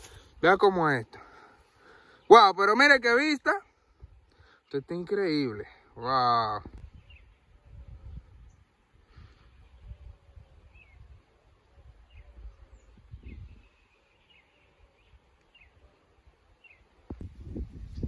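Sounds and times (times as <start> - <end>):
low rumbling on microphone: 17.1 - 18.0.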